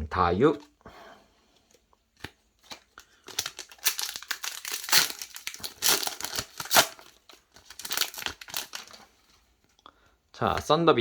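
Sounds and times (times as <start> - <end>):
foil wrapper crinkling and tearing: 2.6 - 9.1.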